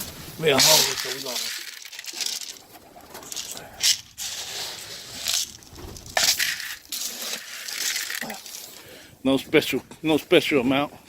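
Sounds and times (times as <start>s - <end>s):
grain pouring and rattling: 0.0s - 8.9s.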